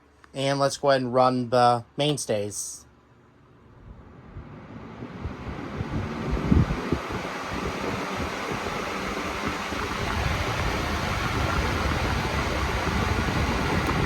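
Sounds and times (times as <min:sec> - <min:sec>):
fan air rushing: 0:00.0 - 0:14.0.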